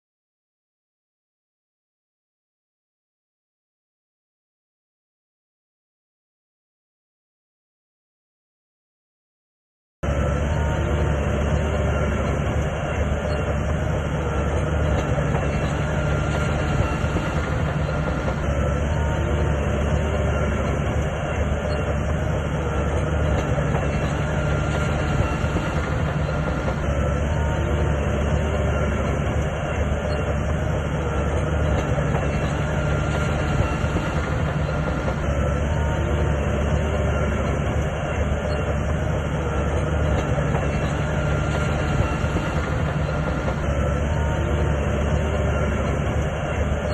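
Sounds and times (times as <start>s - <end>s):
bulldozer diesel engine rumble: 10.0s - 46.9s
steel track clatter: 10.1s - 46.9s.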